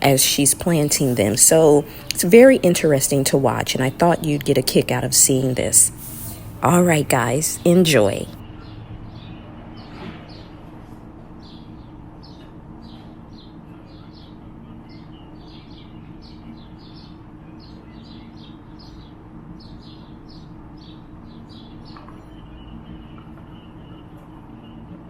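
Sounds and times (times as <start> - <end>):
steady low hum: 0.0 - 25.0
small birds chirping: 11.4 - 25.0.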